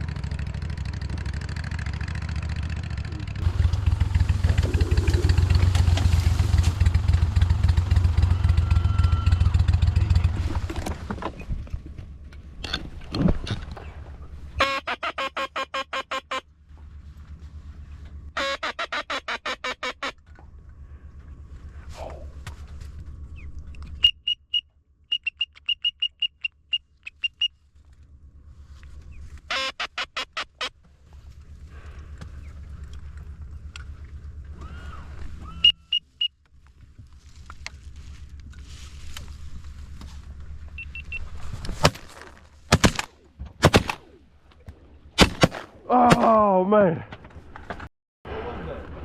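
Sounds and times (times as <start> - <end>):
duck quacks: 18.4 - 20.2
high whistled duck peeps: 23.4 - 27.6
shotgun shots: 42.7 - 44.2, 45.2 - 46.3.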